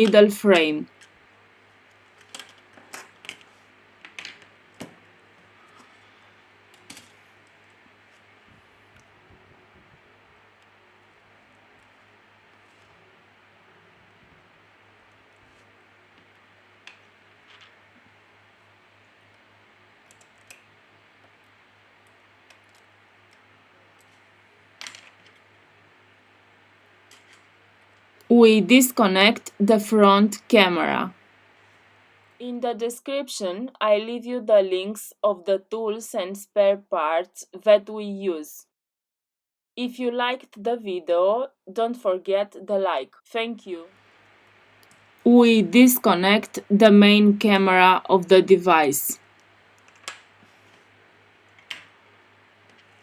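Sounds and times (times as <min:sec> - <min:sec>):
low steady hum: 0:00.0 - 0:02.1, 0:25.5 - 0:34.9, 0:42.8 - 0:49.8.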